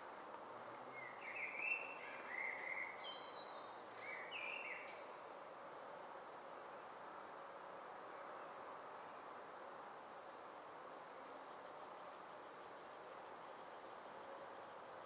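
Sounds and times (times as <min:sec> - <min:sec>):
outdoor background hiss: 0:00.0 - 0:15.0
bird chirping: 0:00.9 - 0:05.4.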